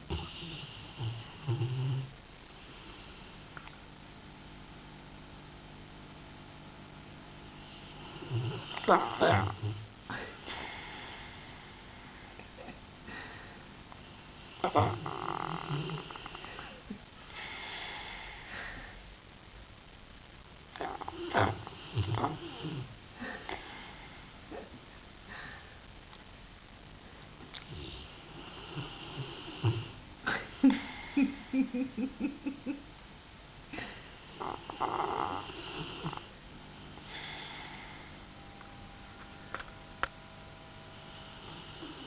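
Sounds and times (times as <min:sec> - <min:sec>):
dog snoring and snorting: 0:00.0 - 0:03.4, 0:07.6 - 0:11.7, 0:14.1 - 0:16.7, 0:20.8 - 0:24.2, 0:27.6 - 0:31.5, 0:34.2 - 0:36.3, 0:41.0 - 0:42.0.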